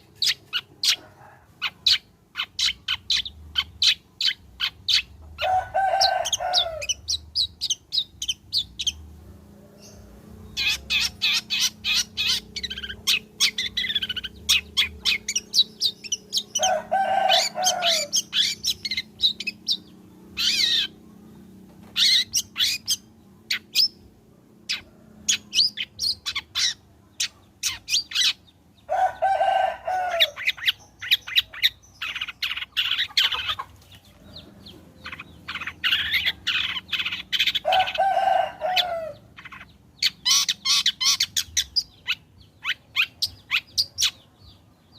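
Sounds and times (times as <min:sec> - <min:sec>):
shrike chattering song: 0:09.8 - 0:21.0, 0:21.8 - 0:24.1, 0:24.7 - 0:44.3.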